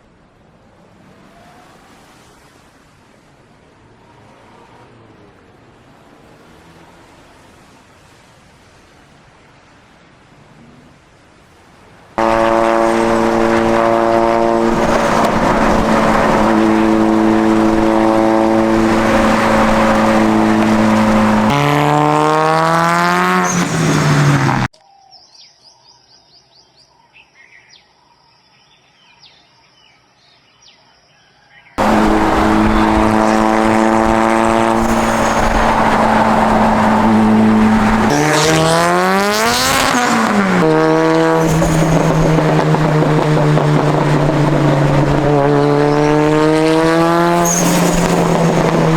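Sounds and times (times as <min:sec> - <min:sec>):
turbocharged car engine revving: 0:12.2 - 0:24.7, 0:31.8 - 0:48.9.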